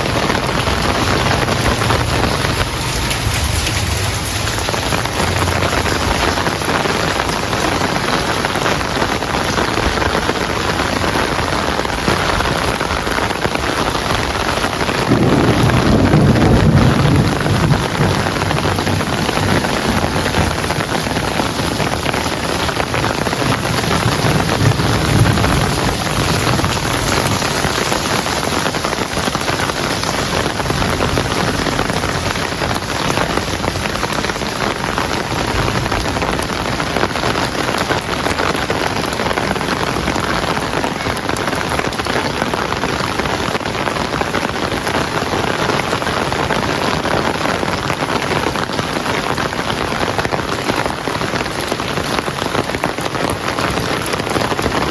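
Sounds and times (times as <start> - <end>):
low rumble: 0.0 - 7.6
heavy rain falling: 0.0 - 54.9.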